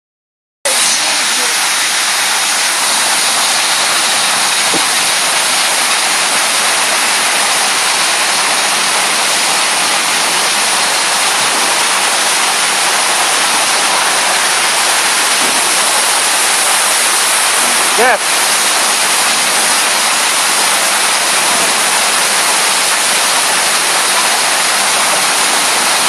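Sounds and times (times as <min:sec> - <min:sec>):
waterfall fountain rushing: 0:00.7 - 0:26.0.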